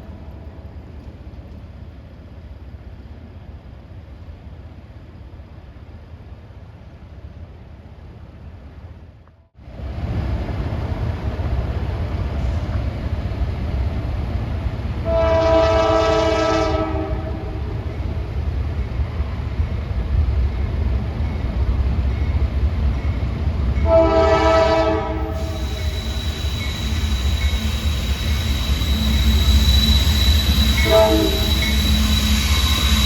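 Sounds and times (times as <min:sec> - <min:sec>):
diesel locomotive rumbling: 0:08.0 - 0:33.0
train horn chord: 0:15.0 - 0:17.7, 0:23.8 - 0:25.5, 0:30.4 - 0:31.8.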